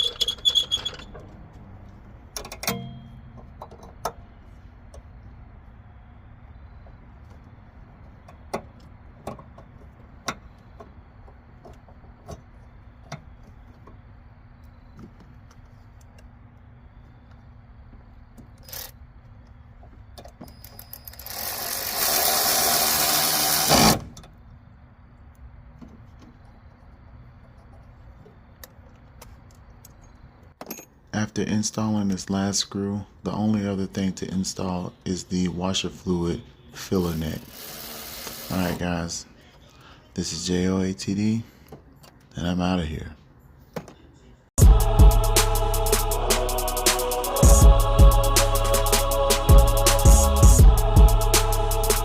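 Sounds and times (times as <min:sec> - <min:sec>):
low steady hum: 0:00.0 - 0:21.1
power driver driving screw: 0:20.9 - 0:24.0, 0:37.5 - 0:38.8.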